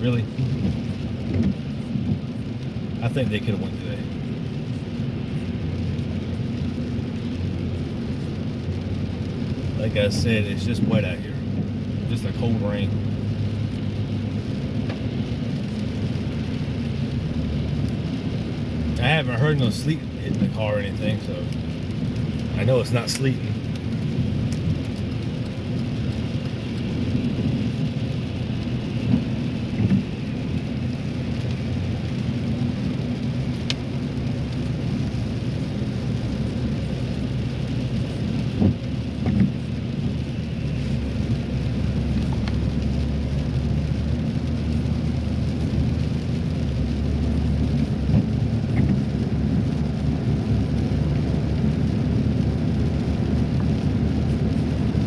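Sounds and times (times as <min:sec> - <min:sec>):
road rumble inside car: 0:00.0 - 0:55.0
tyres hissing on wet road: 0:00.0 - 0:55.0.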